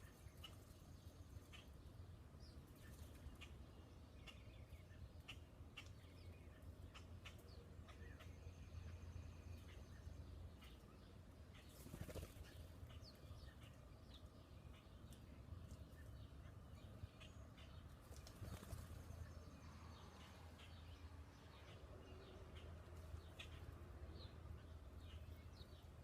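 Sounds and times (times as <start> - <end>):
small birds chirping: 0.0 - 26.0
bird wingbeats: 11.7 - 12.7, 18.0 - 19.1.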